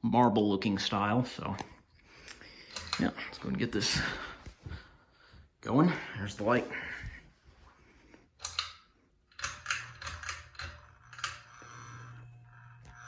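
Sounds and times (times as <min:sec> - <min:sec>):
pull-chain switch clicking: 0:02.7 - 0:03.1, 0:08.4 - 0:11.6
fan motor humming: 0:09.3 - 0:13.0.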